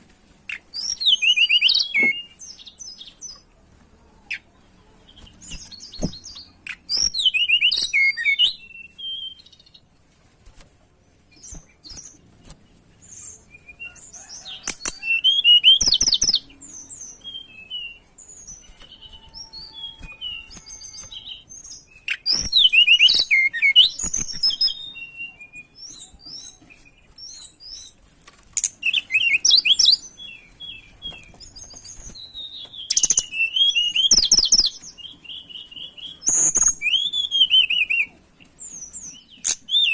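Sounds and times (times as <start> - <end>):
soft bird chirps: 11.0 - 28.0.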